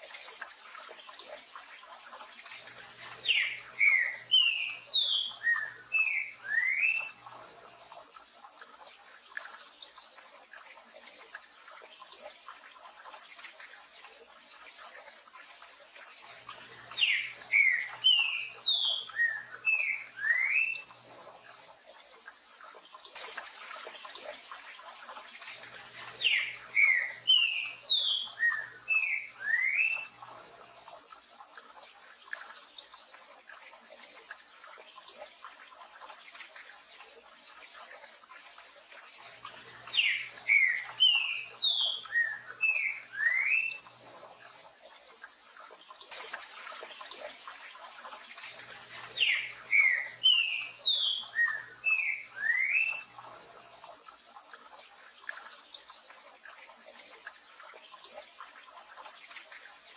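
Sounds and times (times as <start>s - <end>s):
bird singing whistled notes: 3.3s - 7.1s, 17.0s - 20.8s, 26.2s - 30.1s, 39.9s - 43.8s, 49.2s - 53.0s.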